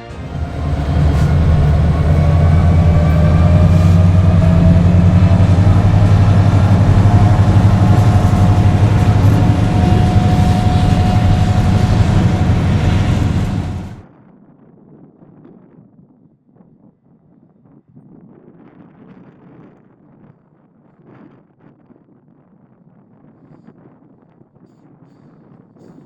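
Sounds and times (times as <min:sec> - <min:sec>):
diesel locomotive engine rumbling: 0:00.0 - 0:14.0
faint whine: 0:00.0 - 0:14.0.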